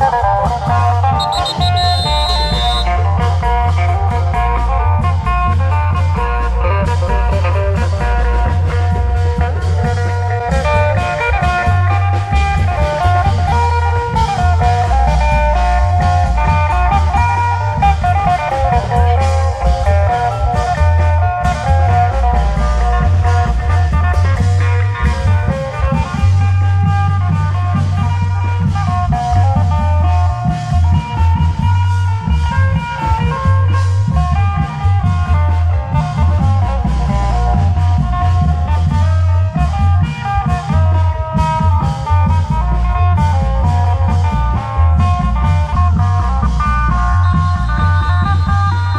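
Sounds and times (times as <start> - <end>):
melodic instrument line: 1.1 - 3.2.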